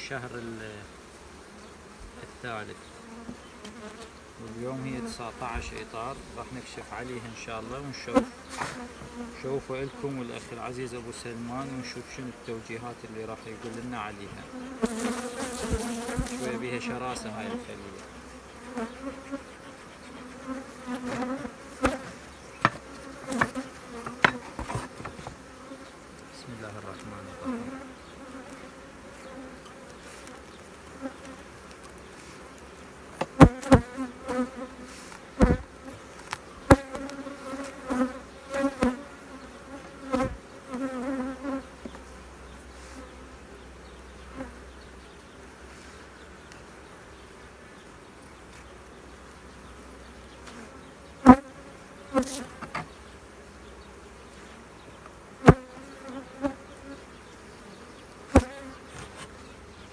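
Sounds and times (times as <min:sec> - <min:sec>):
honeybees buzzing: 0:00.0 - 0:59.9
sharp knocks: 0:22.6 - 0:25.4.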